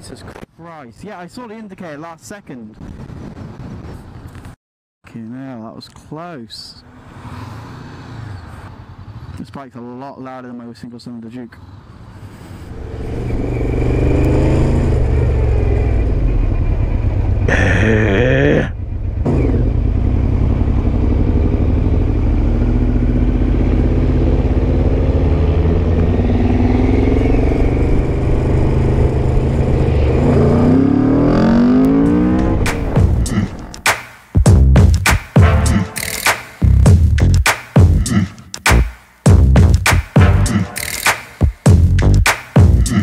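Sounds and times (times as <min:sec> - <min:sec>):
motorcycle engine revving: 0:12.7 - 0:17.7, 0:18.8 - 0:33.8.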